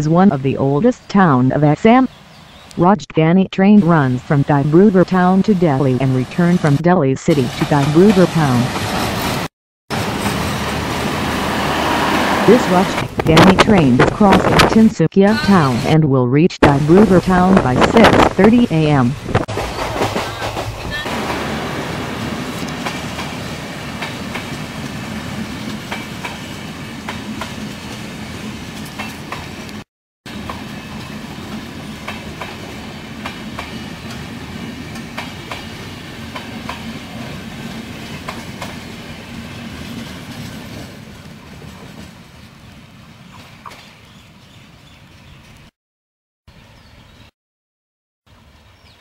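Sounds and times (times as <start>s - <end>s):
train rumbling past: 7.4s - 13.6s, 18.8s - 44.5s.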